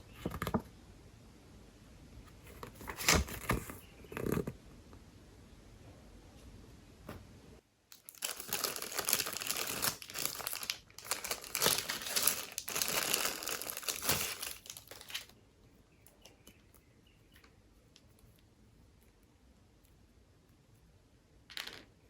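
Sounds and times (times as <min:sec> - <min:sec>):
packaging crinkling: 0:07.9 - 0:15.3.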